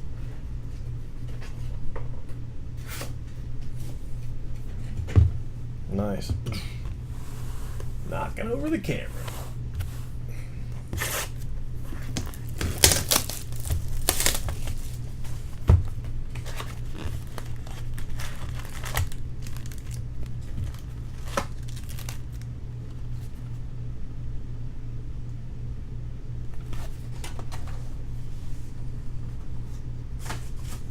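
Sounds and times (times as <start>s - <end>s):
steady low hum: 0.0s - 30.9s
card pack wrappers tearing: 11.9s - 15.2s, 16.3s - 22.5s
wrapper crumpling and rustling: 12.0s - 15.4s, 16.4s - 22.5s.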